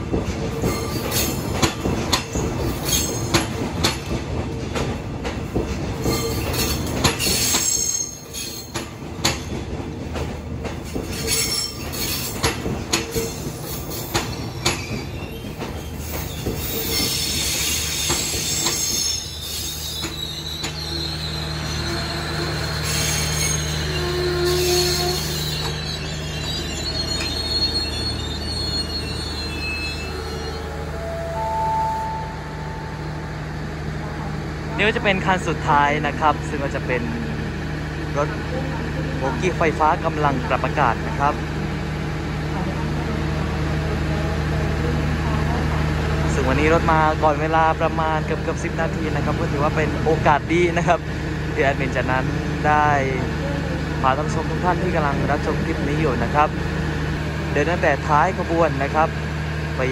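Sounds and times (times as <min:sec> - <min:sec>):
train wheel clacks: 0:00.0 - 0:19.2
wheel and brake squeal: 0:06.1 - 0:08.9, 0:11.1 - 0:32.1.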